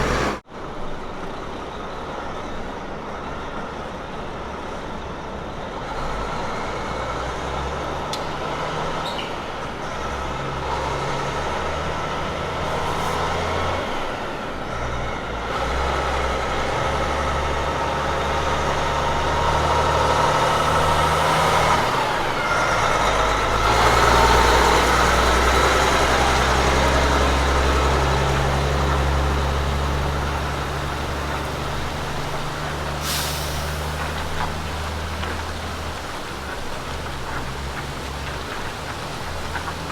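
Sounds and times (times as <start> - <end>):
truck diesel engine changing gears: 0.0 - 0.9, 4.6 - 39.9
air hiss: 32.8 - 34.6.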